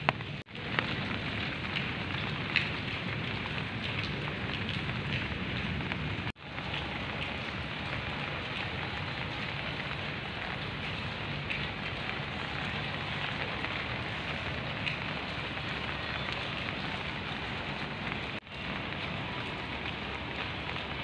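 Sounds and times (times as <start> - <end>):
rain falling on grass and leaves: 0.0 - 21.0.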